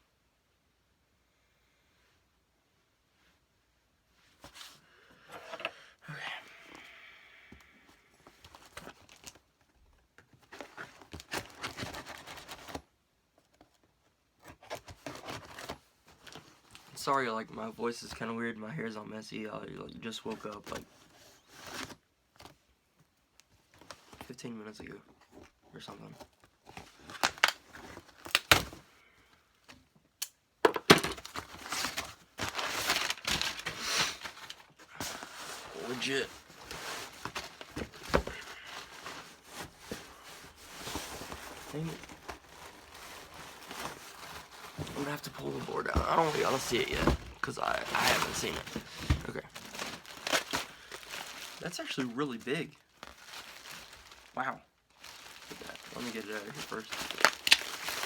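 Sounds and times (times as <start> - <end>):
packaging crinkling and rustling: 8.2 - 17.1, 25.2 - 28.9, 30.6 - 58.0
packaging cracks and clicks: 28.2 - 28.7.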